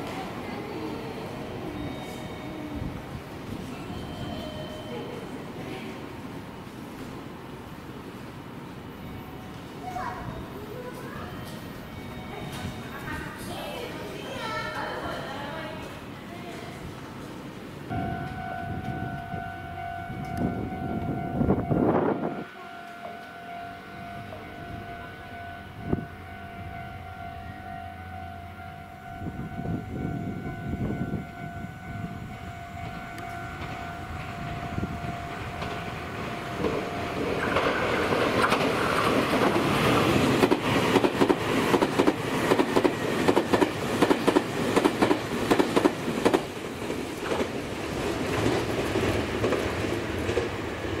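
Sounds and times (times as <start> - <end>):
train rumble: 0.0 - 51.0
level crossing warning bell: 0.7 - 5.9, 8.7 - 16.4, 17.9 - 38.7
wheels clattering over rail joints: 32.8 - 51.0.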